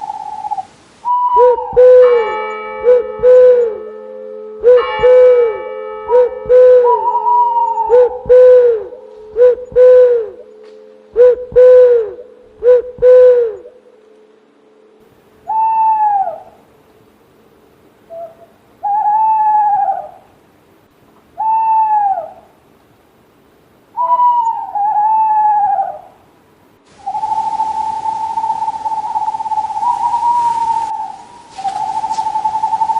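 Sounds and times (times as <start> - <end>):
higher-pitched owl calls: 0.0 - 3.9, 4.6 - 13.8, 15.4 - 16.6, 18.1 - 20.4, 21.4 - 22.6, 23.9 - 26.2, 26.9 - 32.9
held whistle-like note: 0.0 - 13.7, 27.0 - 32.9
owl hooting: 0.0 - 13.8, 15.4 - 16.7, 18.0 - 20.4, 21.4 - 22.6, 23.9 - 26.2, 26.9 - 32.9.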